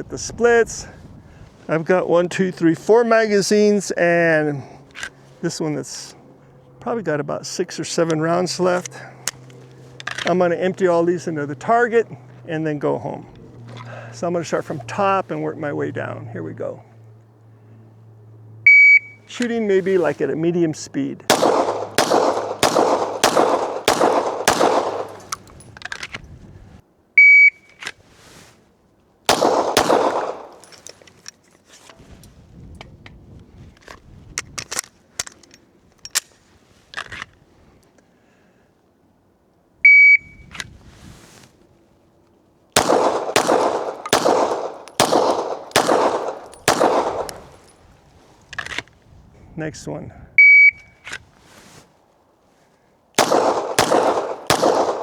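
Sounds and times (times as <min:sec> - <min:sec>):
shot timer beep: 0:18.7 - 0:19.2
pistol shots: 0:21.3 - 0:25.6, 0:29.3 - 0:30.8, 0:42.8 - 0:47.8, 0:53.2 - 0:55.0.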